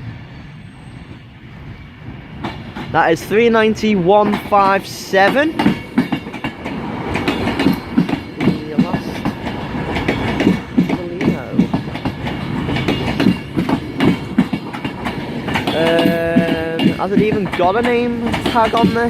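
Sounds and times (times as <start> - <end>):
electric train moving: 0.0 - 19.0
wheel-on-rail noise: 0.0 - 19.0
wheels knocking over rail joints: 4.2 - 19.0.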